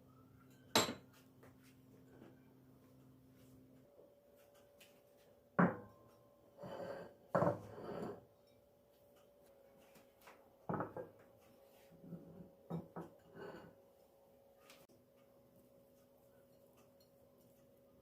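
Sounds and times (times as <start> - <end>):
dishes and utensils knocking: 7.4 - 7.7, 10.7 - 11.2.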